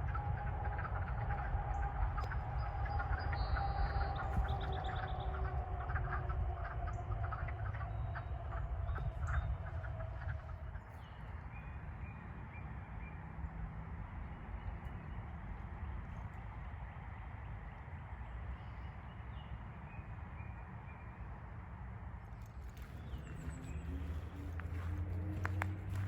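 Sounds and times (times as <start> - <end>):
frog chorus: 0.0 - 11.0
low rumble: 0.0 - 13.0.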